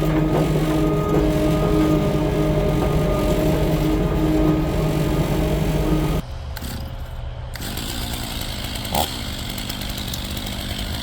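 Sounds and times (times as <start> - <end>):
chainsaw cutting wood then idling: 7.6 - 11.0.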